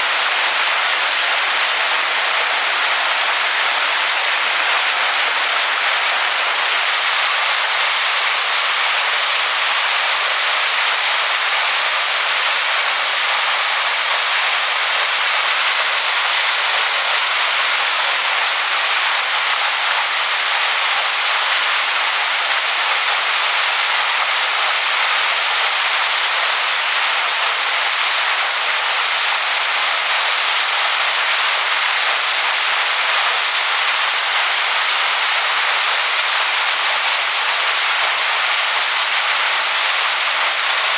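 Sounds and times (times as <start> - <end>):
waterfall splashing onto rocks: 0.0 - 40.9.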